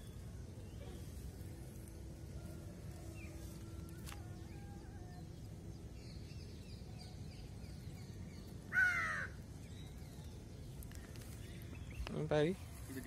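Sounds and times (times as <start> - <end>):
small birds chirping: 0.0 - 13.0
bird harsh call: 8.7 - 9.4.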